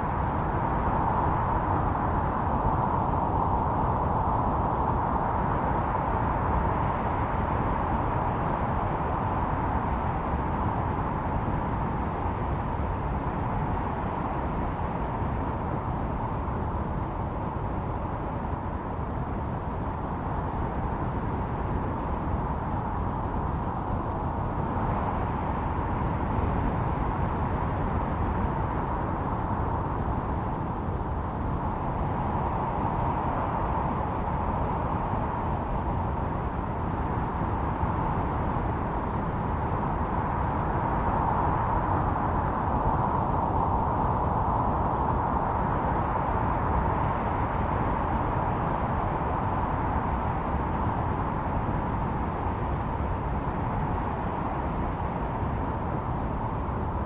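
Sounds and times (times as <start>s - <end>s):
snowstorm wind howling: 0.0s - 57.0s.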